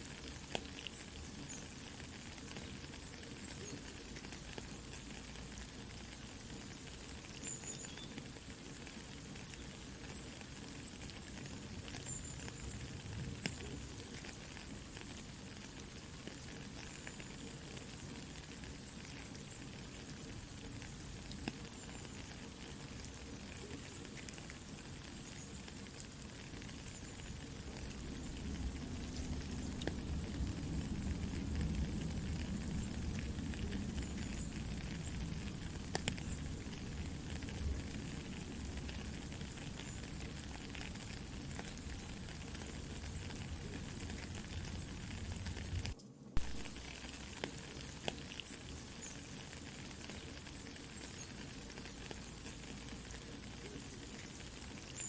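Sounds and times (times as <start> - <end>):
campfire crackling and popping: 0.0 - 55.0
soft steady rain: 0.0 - 55.0.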